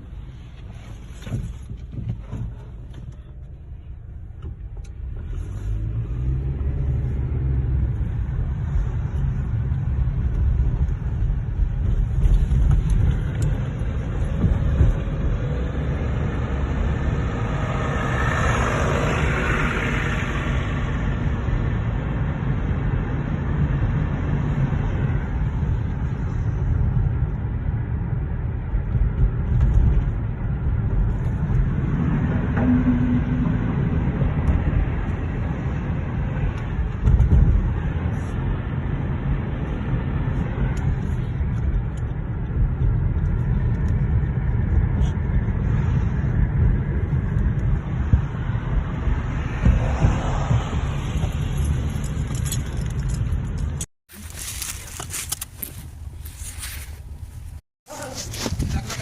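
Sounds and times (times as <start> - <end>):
car engine and tyres rumbling: 0.0 - 59.0
car bumps: 1.0 - 3.5.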